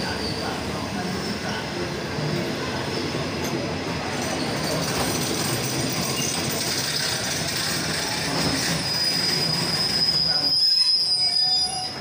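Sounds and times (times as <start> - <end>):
high brake squeal: 0.0 - 0.6, 6.0 - 7.4, 8.0 - 12.0
train wheels rumbling: 0.0 - 12.0.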